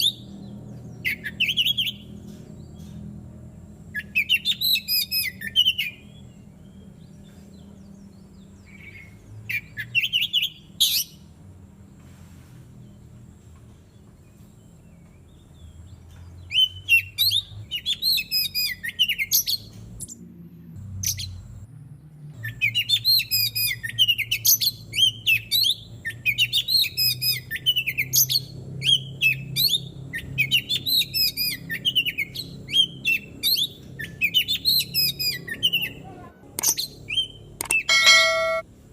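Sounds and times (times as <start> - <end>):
bird singing chirping phrases: 0.0 - 12.0, 12.8 - 38.6
sharp click: 36.6 - 36.9, 37.6 - 38.6.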